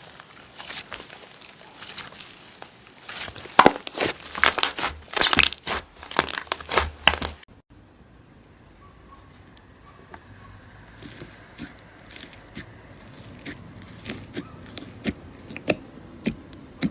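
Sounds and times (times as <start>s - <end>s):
slime crackling and popping: 0.0s - 7.4s.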